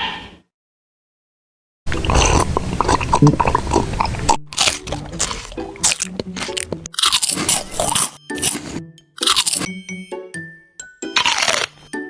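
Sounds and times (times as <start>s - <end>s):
crunching bites into hard food: 1.9s - 9.7s, 11.1s - 11.8s
background music: 3.3s - 12.0s.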